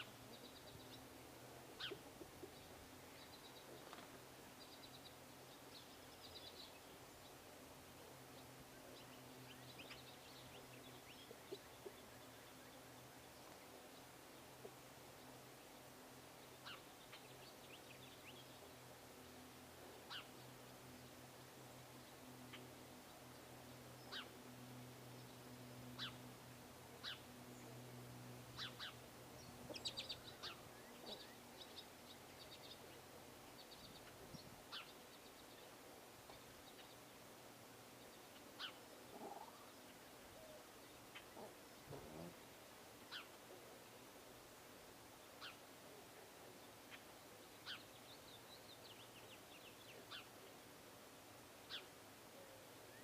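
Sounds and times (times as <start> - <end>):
songbirds chirping: 0.0 - 53.0
steady background hiss: 0.0 - 53.0
small bird chirps and twitters: 1.8 - 6.9, 16.5 - 18.7, 33.5 - 35.7, 38.0 - 39.8, 43.1 - 43.4, 45.4 - 45.6, 46.9 - 50.4, 51.7 - 51.9.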